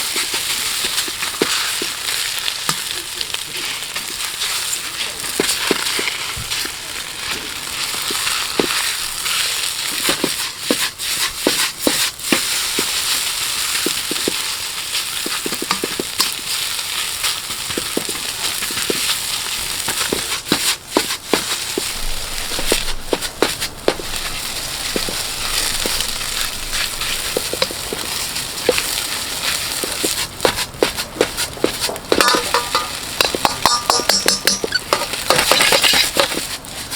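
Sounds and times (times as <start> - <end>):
rice sizzling in a wok: 0.0 - 36.9
ladle knocking against wok: 15.3 - 16.4, 29.8 - 36.5.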